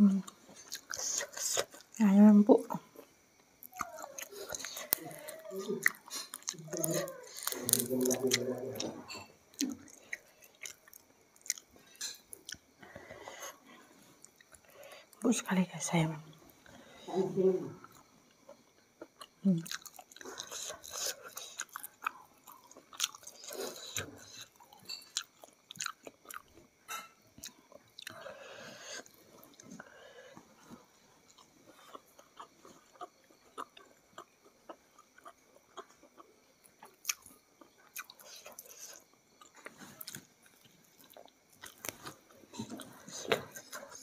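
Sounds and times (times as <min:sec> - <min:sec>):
person chewing and biting food: 0:03.5 - 0:12.9, 0:19.0 - 0:28.3, 0:31.2 - 0:44.0
small clicks and crunches: 0:39.5 - 0:43.9.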